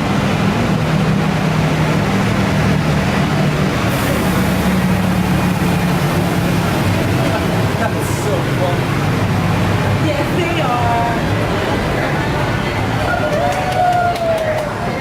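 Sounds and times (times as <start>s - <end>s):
vehicle engine running: 0.0s - 13.4s
hiss: 3.9s - 7.0s.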